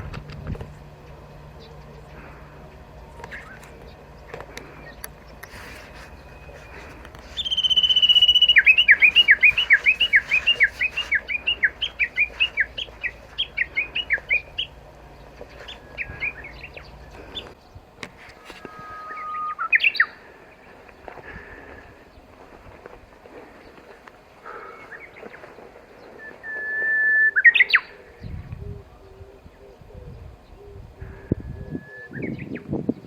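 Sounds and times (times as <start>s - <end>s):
bird singing whistled notes: 6.1s - 14.8s, 18.6s - 20.2s, 26.0s - 29.3s, 31.3s - 32.7s.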